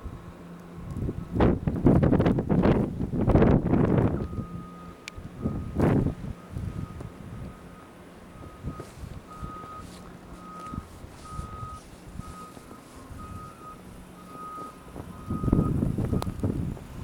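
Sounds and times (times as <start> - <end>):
faint rumble: 0.0 - 17.0
vehicle reversing alarm beeping: 3.4 - 17.0.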